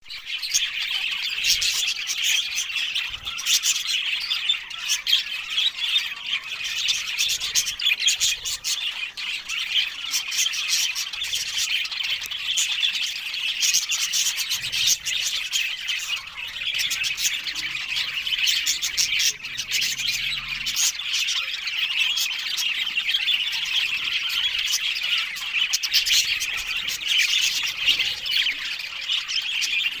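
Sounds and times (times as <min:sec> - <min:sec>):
budgerigars chattering and squawking: 0:00.1 - 0:30.0.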